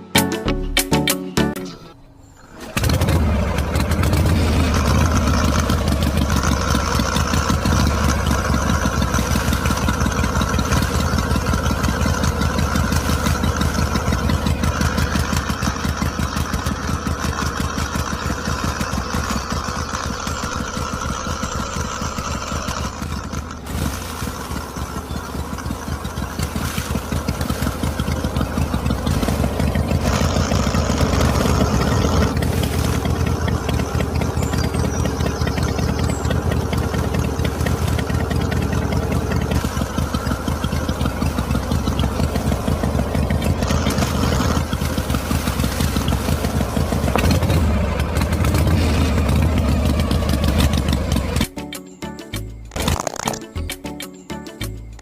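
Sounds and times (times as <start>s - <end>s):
tractor engine putter: 0.6s - 55.0s.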